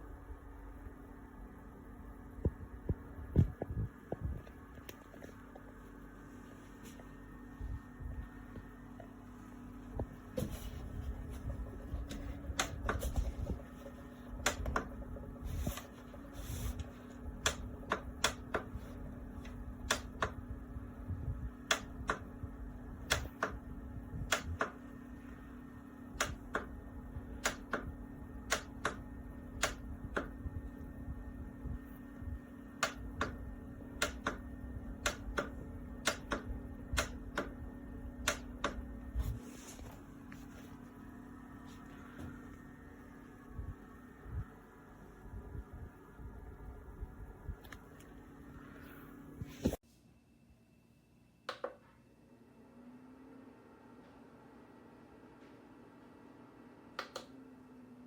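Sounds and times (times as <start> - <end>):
steady low hum: 0.0 - 53.0
sharp clicks: 29.6 - 30.3, 35.0 - 37.5.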